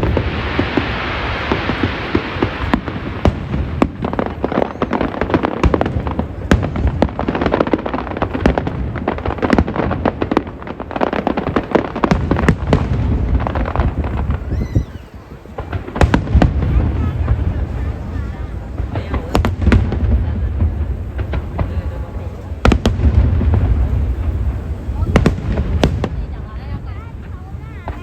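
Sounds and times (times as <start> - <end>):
fireworks crackling: 0.0 - 28.0
low booming rumble: 15.6 - 28.0.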